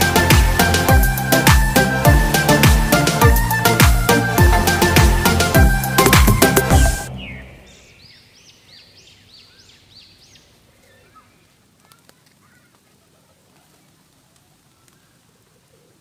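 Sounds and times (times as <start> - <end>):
bird chirping: 5.5 - 11.6.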